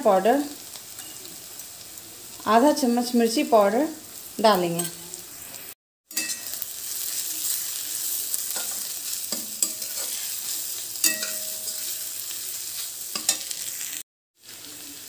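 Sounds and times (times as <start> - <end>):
onions sizzling in oil: 0.0 - 15.0
metal spatula scraping pan: 6.1 - 13.8.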